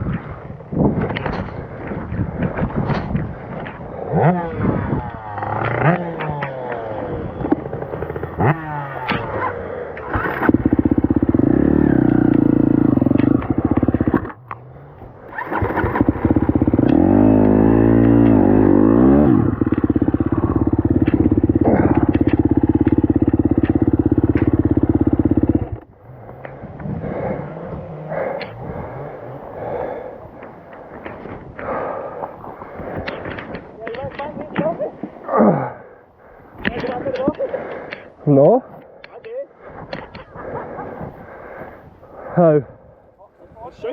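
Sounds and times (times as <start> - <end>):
dirt bike engine revving: 4.0 - 32.1.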